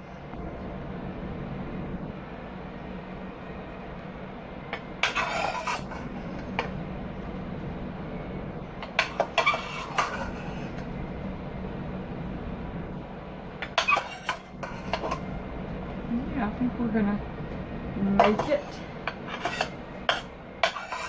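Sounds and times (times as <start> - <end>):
steady low hum: 0.0 - 21.0
metal spoon scraping a pan: 5.0 - 6.7, 8.8 - 10.8, 13.6 - 15.2, 18.2 - 21.0.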